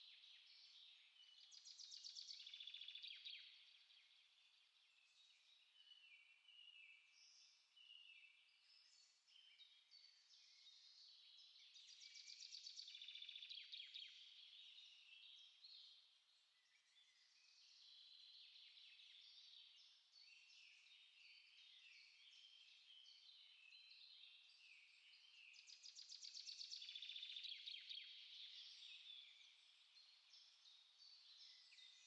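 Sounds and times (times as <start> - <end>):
small songbirds chirping: 0.0 - 32.0.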